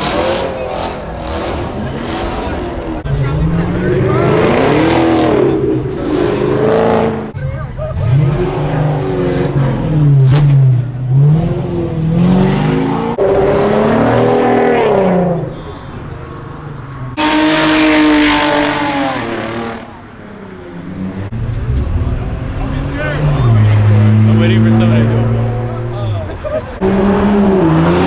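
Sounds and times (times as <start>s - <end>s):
car engines revving: 0.0s - 28.0s
loud car rushing past: 16.3s - 28.0s.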